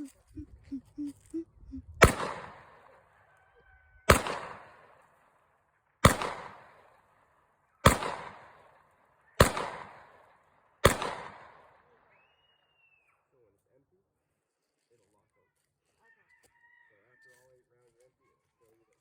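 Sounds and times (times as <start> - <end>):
pistol gunshots with echo: 2.0 - 3.0, 4.0 - 5.1, 6.0 - 7.2, 7.8 - 12.0.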